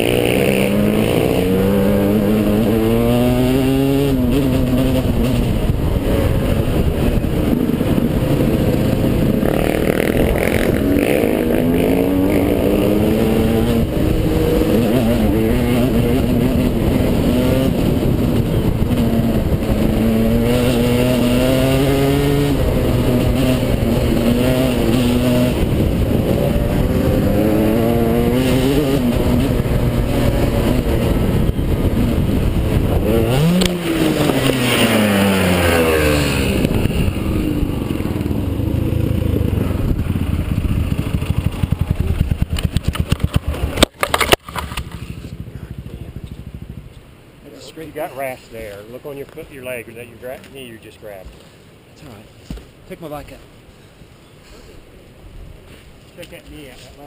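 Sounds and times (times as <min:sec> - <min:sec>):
wind rush on microphone: 0:00.0 - 0:43.9
motorcycle engine revving: 0:00.0 - 0:48.3.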